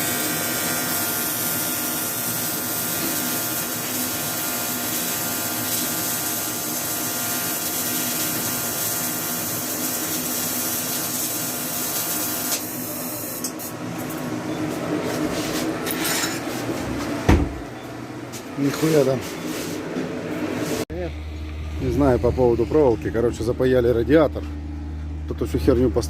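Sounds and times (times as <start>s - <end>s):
short thump: 17.3s - 17.6s.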